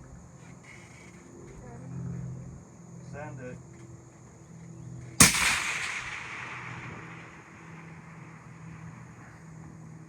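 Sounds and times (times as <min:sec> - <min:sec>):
rifle shot: 0:05.2 - 0:09.3
rolling echo of gunshot: 0:05.2 - 0:09.4.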